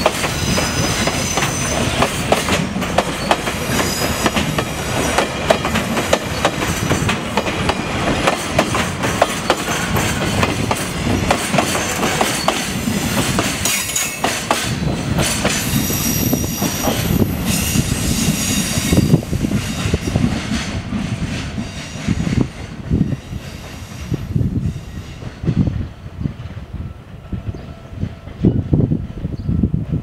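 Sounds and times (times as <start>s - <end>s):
high wheel squeal: 0.0s - 2.0s, 15.6s - 19.2s
wheels clacking over rail joints: 0.0s - 15.9s.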